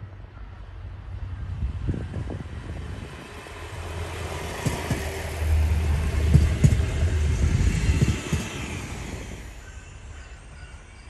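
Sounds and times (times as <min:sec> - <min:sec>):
diesel train engine rumble: 0:00.0 - 0:11.0.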